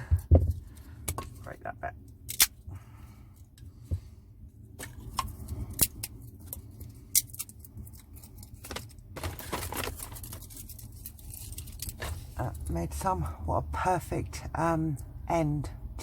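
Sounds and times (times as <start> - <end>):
low steady hum: 0.0 - 16.0
wood rustling and clattering: 7.9 - 12.4.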